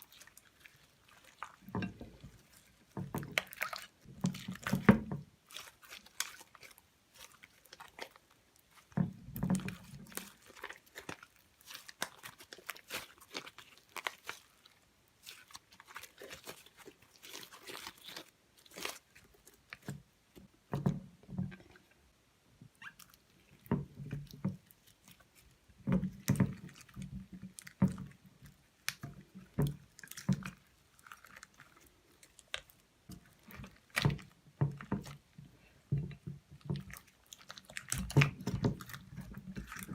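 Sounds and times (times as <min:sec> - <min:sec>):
slime squishing by hand: 0:00.0 - 0:22.1, 0:22.7 - 0:39.9.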